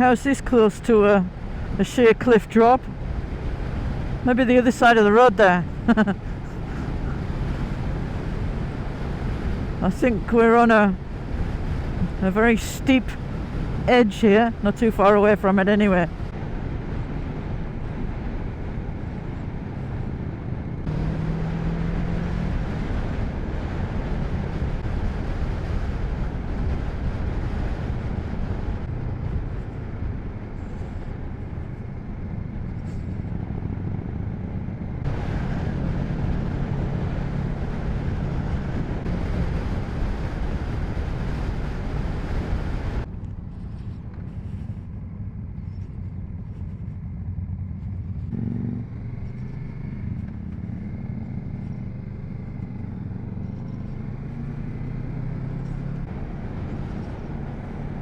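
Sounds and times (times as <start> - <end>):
wind and road noise: 0.0 - 58.0
motorcycle engine running: 16.1 - 40.2, 43.0 - 58.0.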